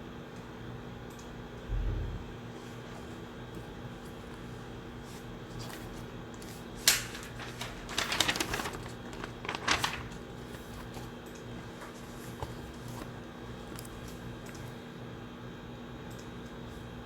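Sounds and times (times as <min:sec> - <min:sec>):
ventilation hum: 0:00.0 - 0:17.0
paper rustling: 0:02.7 - 0:14.7.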